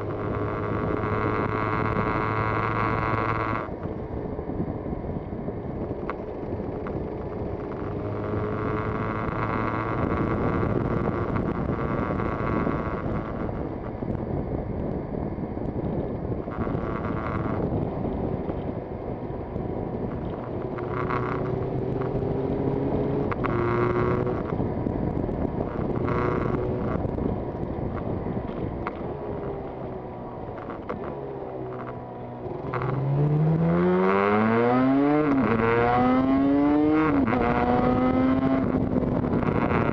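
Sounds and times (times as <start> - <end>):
two-stroke motorcycle engine: 0.0 - 4.2, 5.2 - 39.9
wind rush: 8.9 - 30.8, 32.4 - 39.9.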